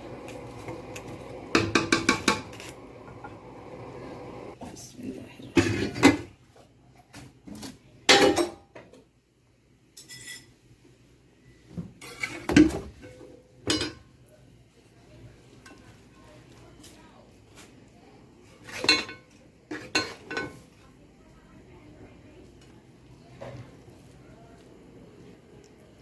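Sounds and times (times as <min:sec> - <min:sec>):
spoon knocking and scraping a pot: 0:00.0 - 0:04.6.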